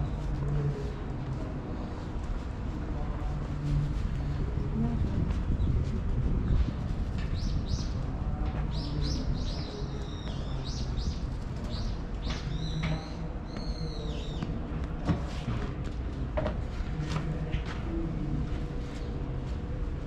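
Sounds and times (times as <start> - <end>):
steady low rumble: 0.0 - 20.0
small birds chirping: 7.2 - 8.0, 8.7 - 14.5.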